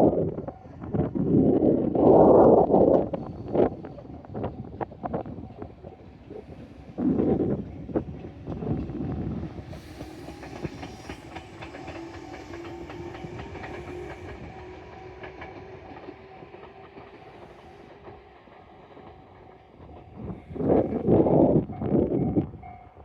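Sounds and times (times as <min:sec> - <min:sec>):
train motor hum: 0:05.7 - 0:20.4
train wheels clicking over rail joints: 0:07.7 - 0:21.1.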